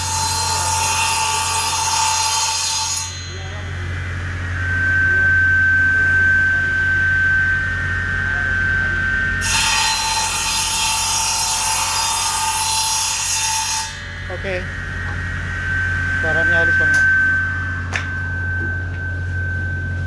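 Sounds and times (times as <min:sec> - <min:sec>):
saw blade cutting wood: 0:00.0 - 0:03.4, 0:09.4 - 0:14.6
electric saw whining: 0:00.0 - 0:20.0.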